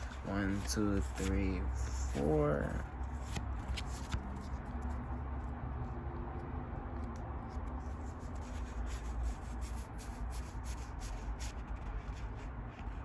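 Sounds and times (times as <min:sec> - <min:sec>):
trading cards rubbing and clicking: 0:00.0 - 0:05.1
low background hum: 0:00.0 - 0:13.0.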